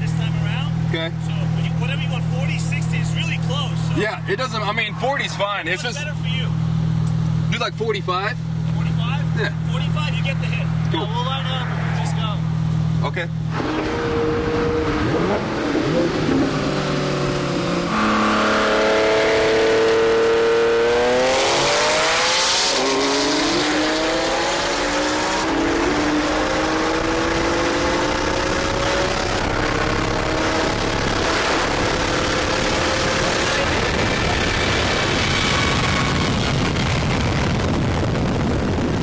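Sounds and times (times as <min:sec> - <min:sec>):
car engine revving hard: 0:13.1 - 0:38.8.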